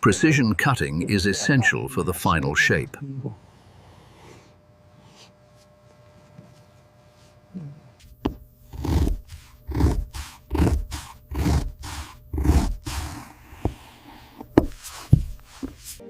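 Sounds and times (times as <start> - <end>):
blade scraping leather: 8.3 - 16.0.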